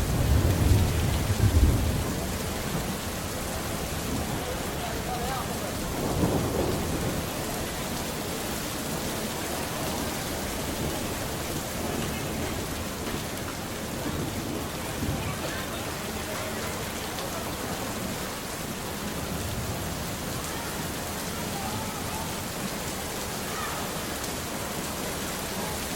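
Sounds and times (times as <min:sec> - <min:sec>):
thunder rumbling: 0:00.0 - 0:16.2
rain hissing: 0:00.0 - 0:25.9.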